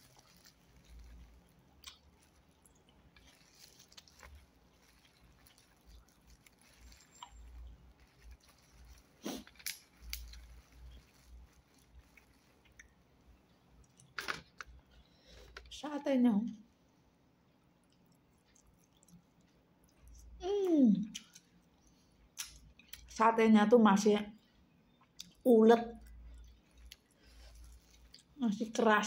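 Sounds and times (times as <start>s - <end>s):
close-up chewing: 0.0s - 15.6s, 17.8s - 20.4s, 25.0s - 28.4s.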